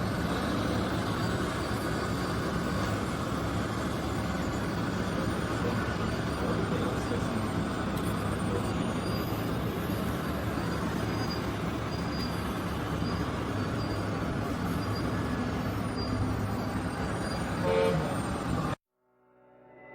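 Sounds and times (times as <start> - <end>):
model machines humming and whirring: 0.0 - 18.8
short horn toot: 17.6 - 18.2.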